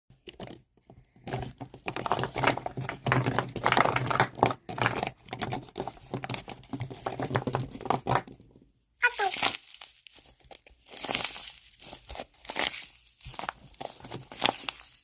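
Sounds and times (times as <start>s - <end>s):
tissue crinkling and crackling: 9.0s - 15.0s.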